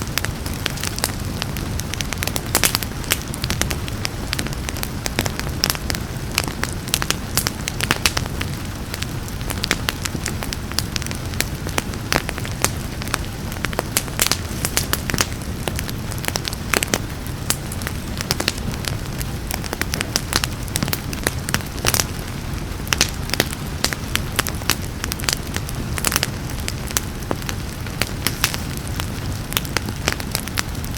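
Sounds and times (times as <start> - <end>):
rain: 0.0 - 30.9
wood fire crackling and popping: 0.0 - 30.9.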